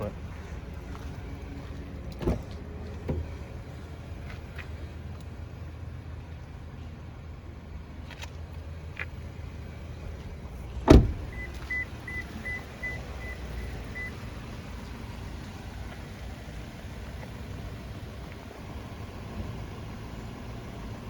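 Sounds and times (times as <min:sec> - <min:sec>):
low steady rumble: 0:00.0 - 0:21.0
car door shutting: 0:02.1 - 0:03.6, 0:10.8 - 0:14.2.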